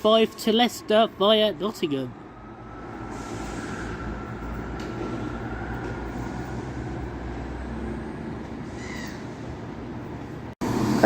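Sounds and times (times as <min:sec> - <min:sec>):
diesel train engines rumbling: 0:00.0 - 0:11.0.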